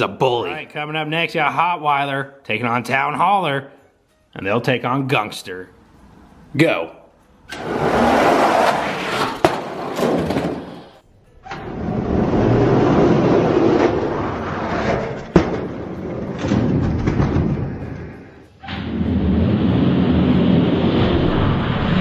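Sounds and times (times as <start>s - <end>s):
toy trucks rolling on a track: 7.5s - 22.0s.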